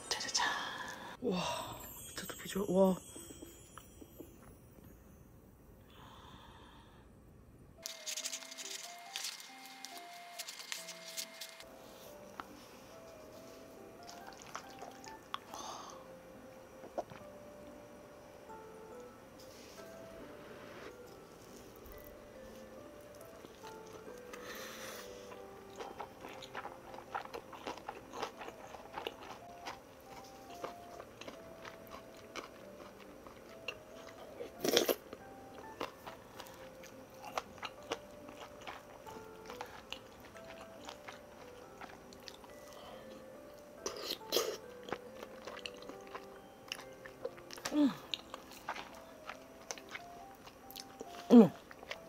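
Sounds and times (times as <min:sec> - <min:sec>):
soft background music: 0:00.0 - 0:06.9, 0:07.7 - 0:52.0
person chewing food: 0:13.5 - 0:16.1, 0:21.1 - 0:52.0.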